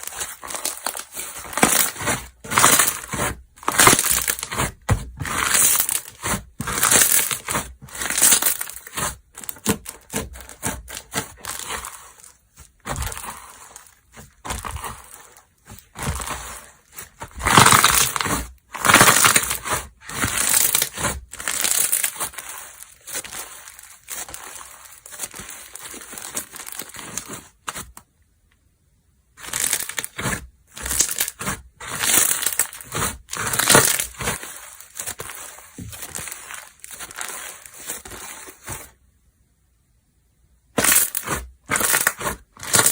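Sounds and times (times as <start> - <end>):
slime squishing and crackling: 0.0 - 28.0, 29.4 - 38.9, 40.8 - 42.9.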